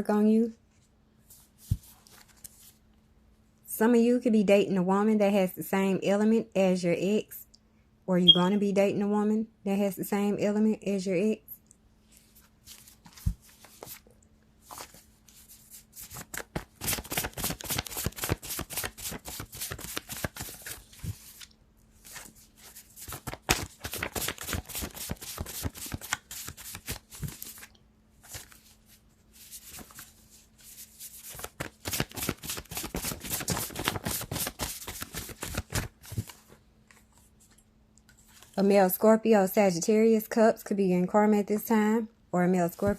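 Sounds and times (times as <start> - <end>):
cards being shuffled: 12.2 - 38.6.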